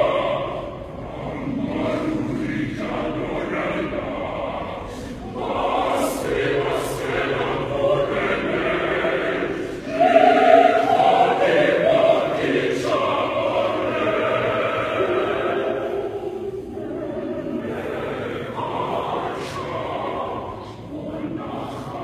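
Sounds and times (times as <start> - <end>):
choir singing held chords: 0.0 - 22.0
singers breathing: 4.8 - 5.3.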